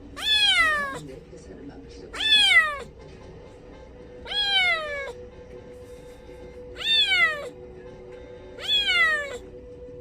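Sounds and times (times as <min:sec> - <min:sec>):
kitten meowing: 0:00.1 - 0:01.0, 0:02.1 - 0:02.9, 0:04.2 - 0:05.2, 0:06.8 - 0:07.6, 0:08.6 - 0:09.5.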